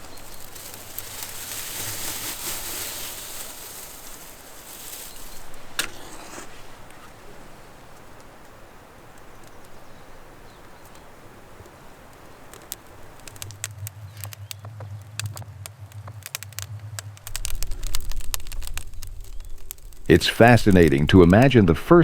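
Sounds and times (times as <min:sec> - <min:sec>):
stones rustling and scraping: 0:00.0 - 0:07.4, 0:12.6 - 0:21.1.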